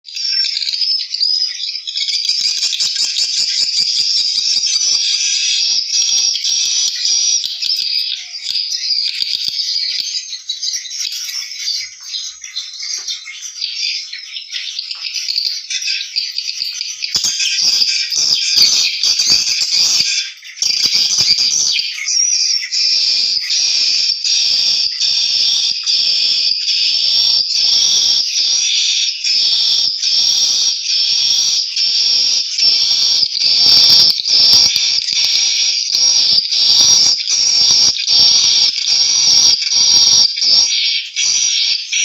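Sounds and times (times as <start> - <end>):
swiftlets twittering: 23.0 - 41.8.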